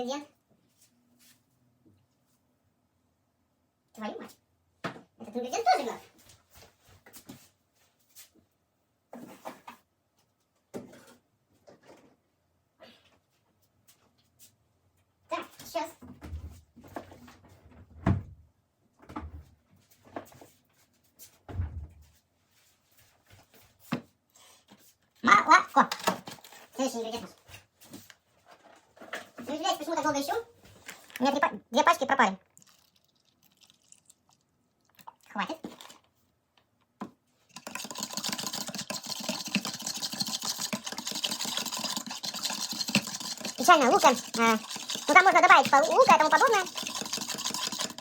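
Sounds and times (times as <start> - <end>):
containers knocking and clunking: 37.5 - 48.0
whisking in a bowl: 37.5 - 48.0.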